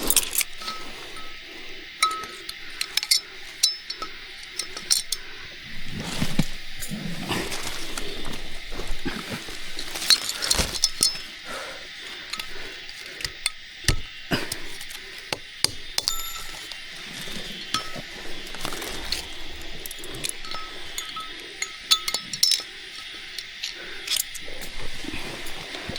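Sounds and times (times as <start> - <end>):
hard objects clinking and knocking: 15.3 - 19.3.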